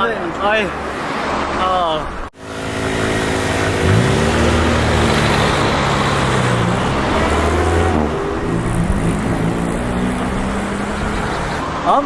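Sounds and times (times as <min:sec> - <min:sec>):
steady rushing noise: 0:00.4 - 0:12.0
vehicle engine running: 0:02.4 - 0:11.6.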